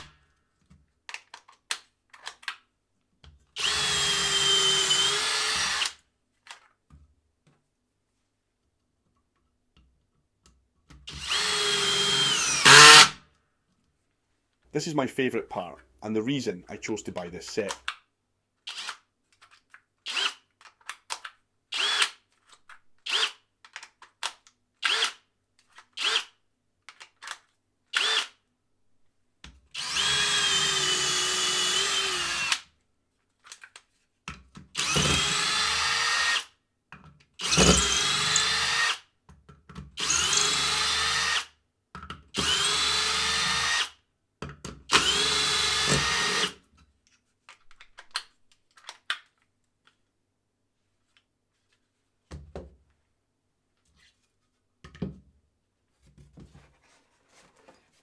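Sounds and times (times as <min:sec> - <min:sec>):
cordless drill whining: 0:03.6 - 0:06.0, 0:11.1 - 0:13.2, 0:21.8 - 0:22.2, 0:29.8 - 0:32.6, 0:34.8 - 0:36.5, 0:37.4 - 0:39.0, 0:40.0 - 0:41.5, 0:42.4 - 0:44.0, 0:44.9 - 0:46.6.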